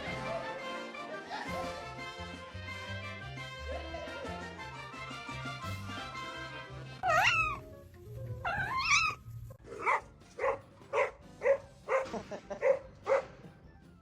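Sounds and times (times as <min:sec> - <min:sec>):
pet's wavering cries: 0:07.0 - 0:07.7, 0:08.4 - 0:09.2.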